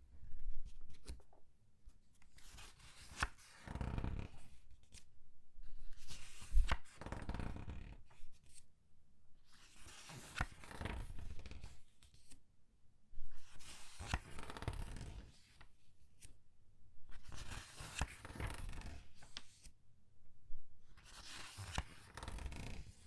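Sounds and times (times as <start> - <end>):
comic book pages turning: 2.3 - 3.6, 9.6 - 12.4, 17.2 - 19.7, 21.0 - 22.8.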